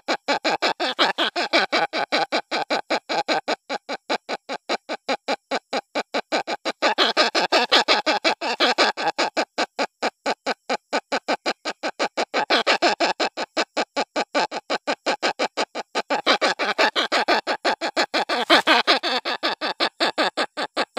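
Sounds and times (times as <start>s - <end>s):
hornbill chick crying: 6.4s - 9.5s, 16.0s - 20.9s.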